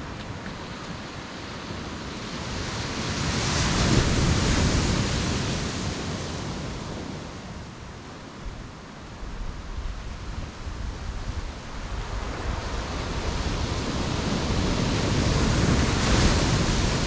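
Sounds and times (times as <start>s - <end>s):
sea waves breaking: 11.8s - 17.0s.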